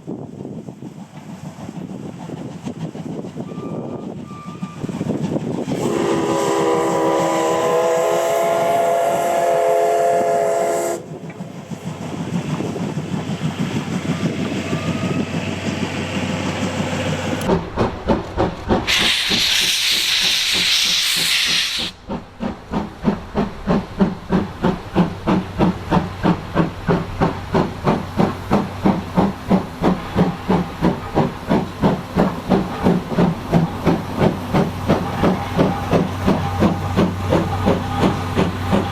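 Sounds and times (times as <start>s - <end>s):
steam locomotive chuffing: 0.0s - 38.9s
steam locomotive whistle: 3.4s - 5.0s, 5.7s - 11.2s, 18.9s - 22.0s, 34.9s - 38.9s
hissing steam burst: 18.7s - 38.9s.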